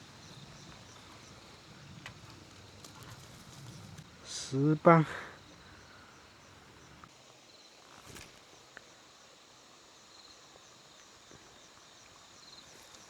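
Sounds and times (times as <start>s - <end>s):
short rustle: 0.0s - 7.1s
faint insects chirping: 0.0s - 13.0s.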